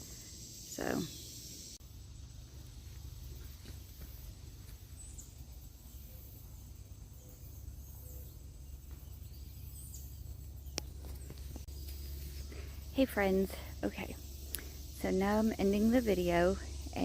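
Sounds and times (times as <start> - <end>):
steady low rumble: 1.6 - 17.0.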